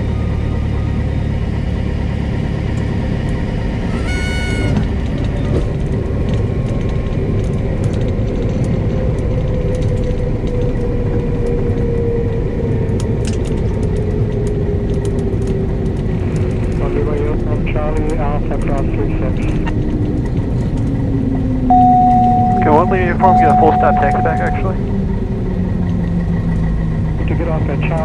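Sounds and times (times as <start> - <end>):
airplane engine and propeller drone: 0.0 - 28.0
high horn-like tone: 3.9 - 5.0, 21.7 - 24.8.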